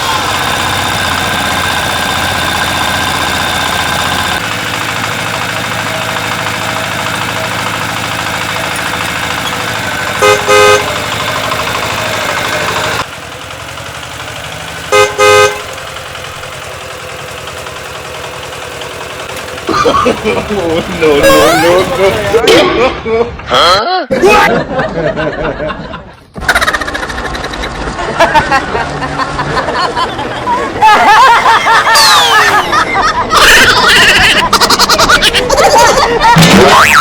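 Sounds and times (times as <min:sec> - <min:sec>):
horn honking: 0:00.0 - 0:13.1, 0:13.9 - 0:17.9, 0:18.8 - 0:22.5
vehicle engine running: 0:00.0 - 0:23.7, 0:24.6 - 0:37.0.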